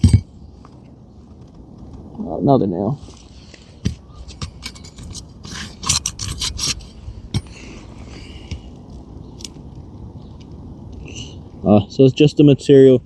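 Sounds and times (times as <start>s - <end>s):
pry tool scraping shingle: 3.2s - 7.7s.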